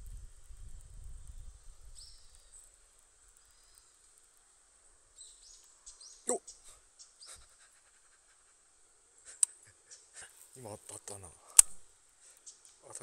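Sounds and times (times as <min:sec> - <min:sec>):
faint bird chirps: 0:01.0 - 0:10.3, 0:12.2 - 0:13.0
sharp click: 0:11.5 - 0:11.8.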